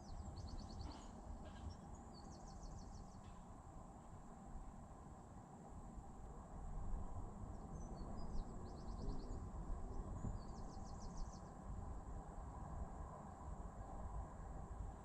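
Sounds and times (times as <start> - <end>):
songbird chirping and trilling: 0.0 - 3.4, 7.6 - 11.5
low outdoor rumble: 0.0 - 15.0.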